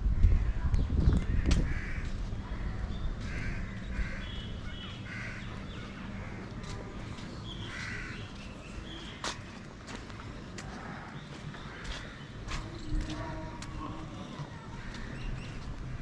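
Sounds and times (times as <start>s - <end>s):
low rumbling noise: 0.0s - 9.0s.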